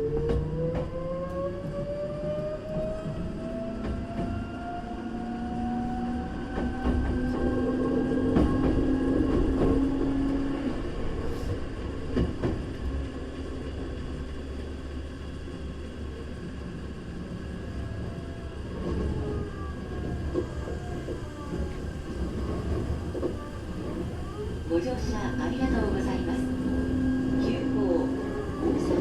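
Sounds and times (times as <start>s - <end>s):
wheels rumbling on rail: 0.0s - 29.0s
train motor tone: 16.5s - 29.0s.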